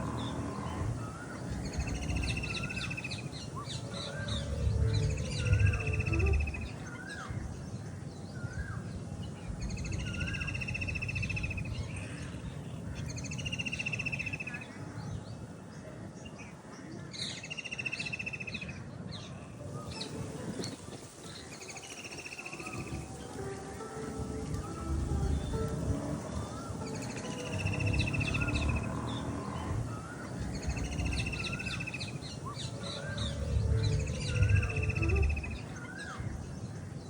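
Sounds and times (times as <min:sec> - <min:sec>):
low background rumble: 0:00.0 - 0:13.4, 0:22.8 - 0:37.0
birds trilling and chirping: 0:00.0 - 0:37.0.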